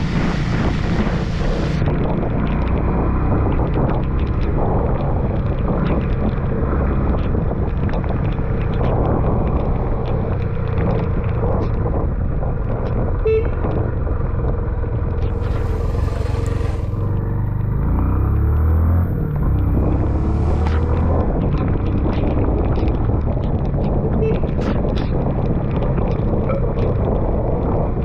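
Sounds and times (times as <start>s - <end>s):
motorcycle road noise: 0.0s - 28.0s
wind buffeting microphone: 0.0s - 28.0s
vehicle horn toot: 13.2s - 13.6s.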